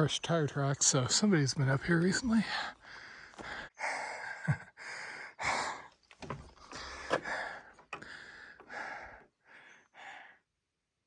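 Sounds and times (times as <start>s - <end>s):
person breathing hard: 2.4s - 10.4s.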